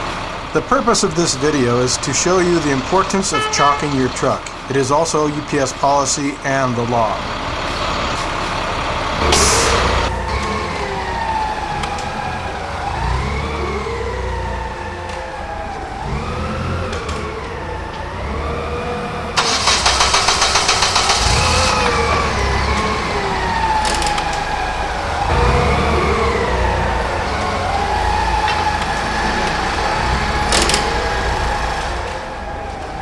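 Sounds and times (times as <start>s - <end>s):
sirens wailing: 0.0s - 33.0s
loud rapid clatter: 19.4s - 24.7s.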